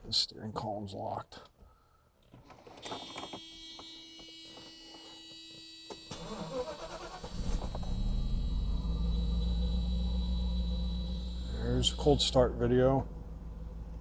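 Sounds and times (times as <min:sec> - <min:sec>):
starter motor cranking: 0:06.1 - 0:12.3
car engine idling: 0:06.3 - 0:14.0.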